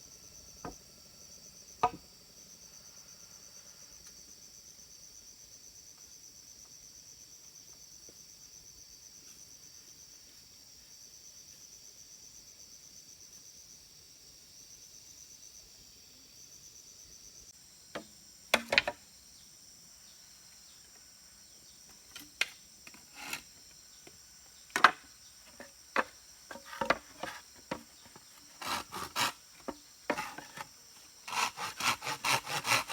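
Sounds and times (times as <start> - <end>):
crickets chirping: 0.0 - 32.9
wood knocking and scraping: 18.0 - 19.0, 22.1 - 23.4, 24.0 - 30.7
hand saw strokes: 22.9 - 23.5, 25.5 - 32.9.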